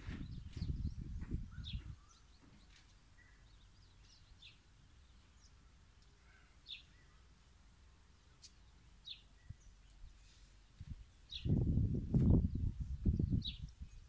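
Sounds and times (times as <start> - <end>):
faint high bird chirps: 0.0 - 7.3.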